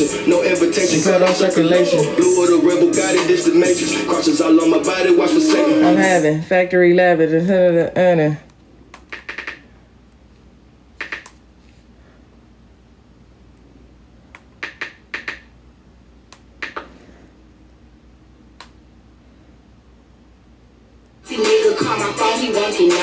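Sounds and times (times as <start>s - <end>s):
low steady hum: 0.0s - 21.3s
sharp clicks: 8.9s - 9.7s, 11.0s - 11.4s, 14.3s - 15.5s, 16.3s - 16.9s.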